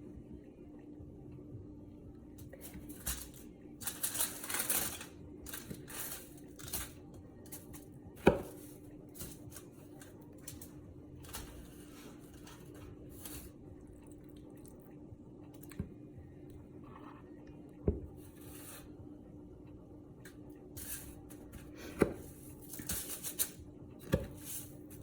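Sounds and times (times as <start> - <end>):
breadcrumbs rustling and crunching: 2.4 - 14.8.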